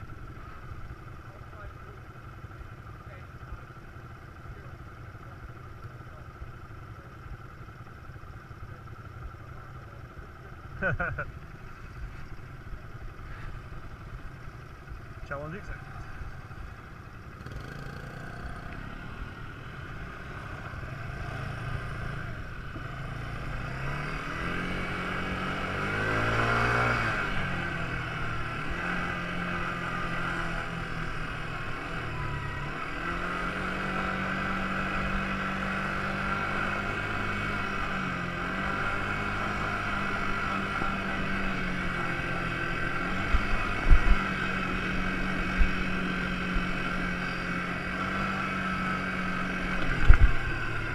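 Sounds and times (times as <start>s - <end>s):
quad bike engine revving: 15.1s - 50.9s.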